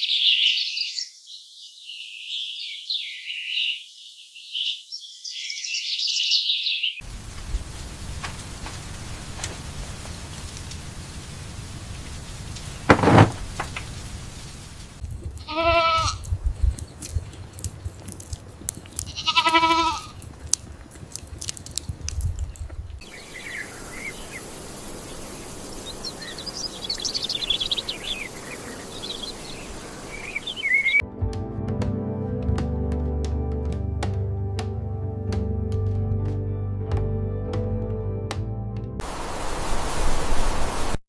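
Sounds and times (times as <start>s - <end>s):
birds chirping: 0.0s - 31.0s
steady high hiss: 7.0s - 15.0s, 23.0s - 31.0s, 39.0s - 41.0s
thump: 12.9s - 13.9s
bleating animal calls: 15.4s - 16.3s, 19.0s - 20.2s
music: 31.0s - 39.0s.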